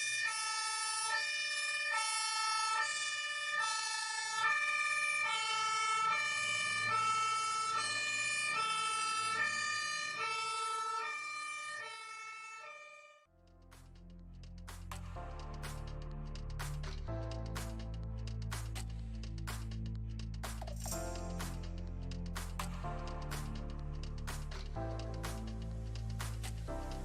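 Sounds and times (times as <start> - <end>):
emergency vehicle two-tone siren: 0.0 - 13.3.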